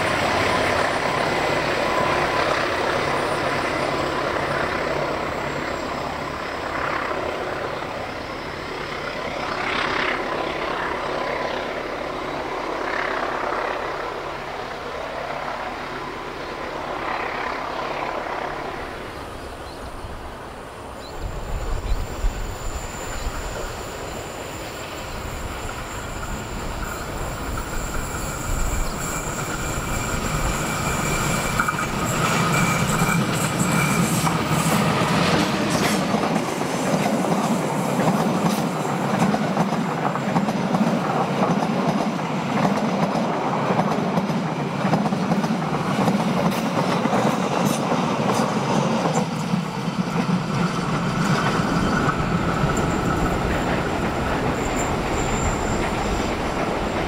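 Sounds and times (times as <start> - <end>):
train rolling rumble: 0.0 - 57.0
wheels squealing on curve: 21.5 - 35.7, 50.2 - 57.0
wheels clattering on rail: 25.5 - 57.0.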